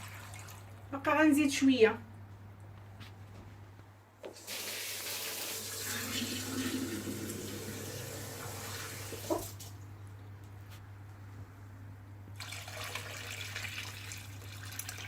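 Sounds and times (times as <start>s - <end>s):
water pouring into a pot: 4.4s - 9.6s, 12.4s - 15.0s.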